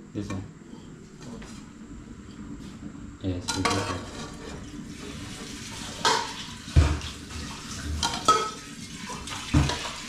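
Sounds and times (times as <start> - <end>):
pots and dishes clattering: 3.5 - 10.0
water splashing and sloshing: 4.7 - 10.0.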